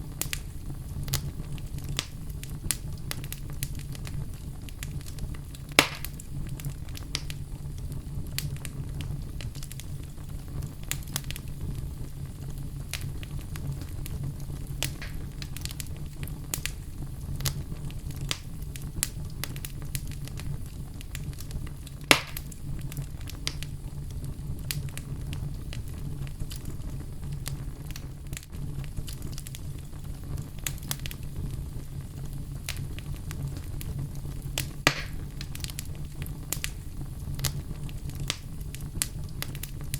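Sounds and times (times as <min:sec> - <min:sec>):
fire crackling: 0:00.0 - 0:39.9
sharp loud pops: 0:05.8 - 0:06.1, 0:22.1 - 0:22.4, 0:34.9 - 0:35.2.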